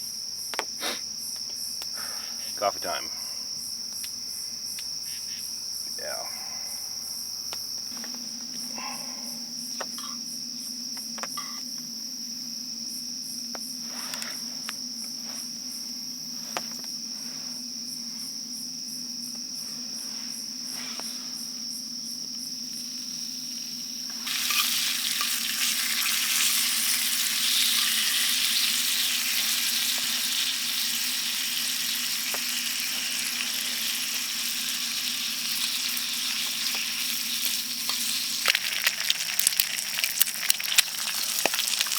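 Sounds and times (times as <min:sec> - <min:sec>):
crickets chirring: 0:00.0 - 0:41.9
food sizzling in a skillet: 0:22.8 - 0:41.9.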